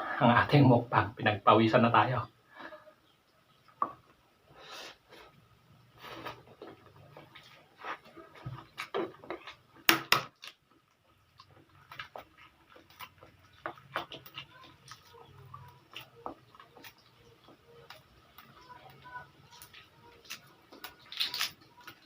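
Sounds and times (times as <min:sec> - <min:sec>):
person chewing and slurping noodles: 0:10.6 - 0:22.0.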